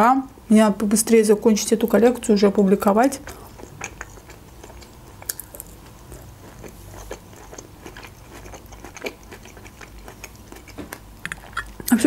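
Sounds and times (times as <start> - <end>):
person chewing tomato: 3.1 - 12.0.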